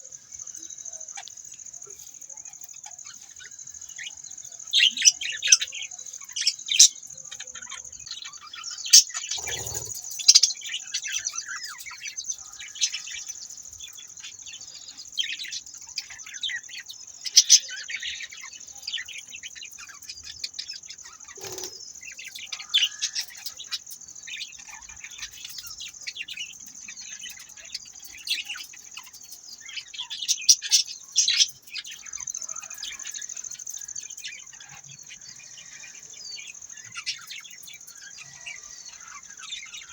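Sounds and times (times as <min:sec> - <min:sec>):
budgerigars chirping and chattering: 0:06.4 - 0:12.0.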